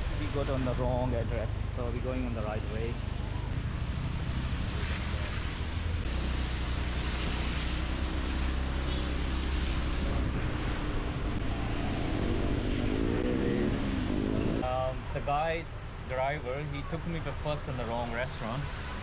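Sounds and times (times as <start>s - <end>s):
car engine and road rumble: 0.0s - 19.0s
hiss of rain and wet tyres: 0.1s - 19.0s.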